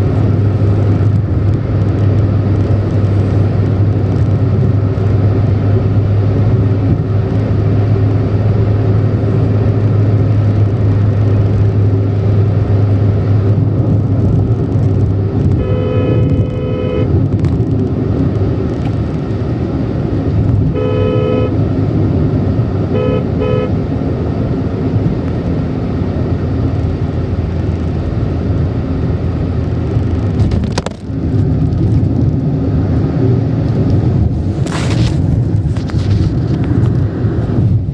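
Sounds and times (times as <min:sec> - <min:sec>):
car driving at speed: 0:00.0 - 0:37.9
car horn honking: 0:15.5 - 0:17.2, 0:20.7 - 0:21.6, 0:22.8 - 0:23.9.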